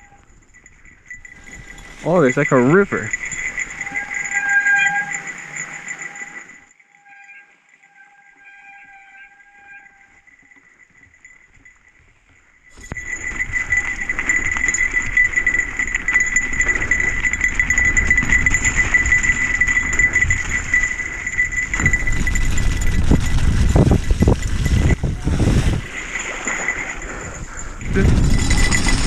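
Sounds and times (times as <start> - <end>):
bike rattling over rough trail: 0.0 - 9.0, 9.6 - 29.0
high-pitched squeal: 3.0 - 10.5.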